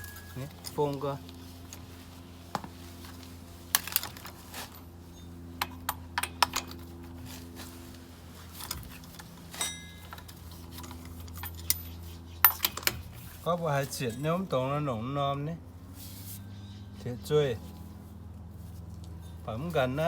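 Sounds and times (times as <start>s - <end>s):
ringing metallic clank: 0.0s - 0.8s, 9.6s - 10.2s
metal hand tools clinking: 0.0s - 1.0s, 9.5s - 10.4s
steady low hum: 0.0s - 20.0s.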